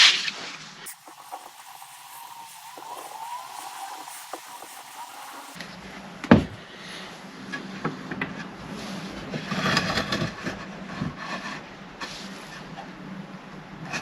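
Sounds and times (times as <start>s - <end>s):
wood scraping and rubbing: 0.9s - 5.6s.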